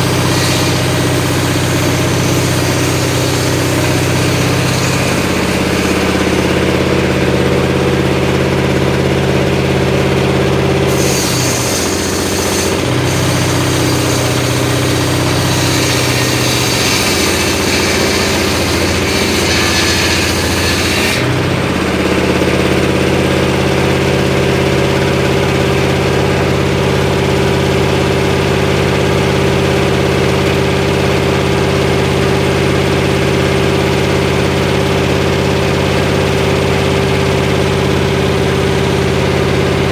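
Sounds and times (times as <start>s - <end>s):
saw blade hissing through wood: 0.0s - 6.7s, 10.9s - 21.3s
circular saw engine running: 0.0s - 39.9s.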